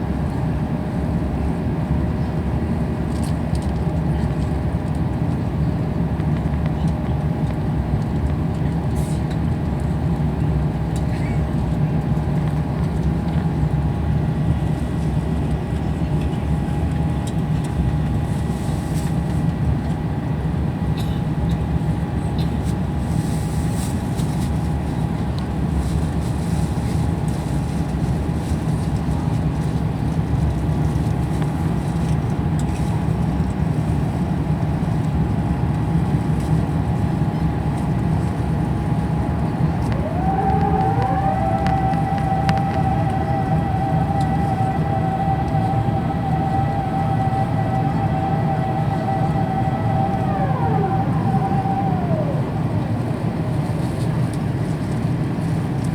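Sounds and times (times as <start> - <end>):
aircraft cabin engine rumble: 0.0 - 55.9
faint steady whine: 37.9 - 55.9.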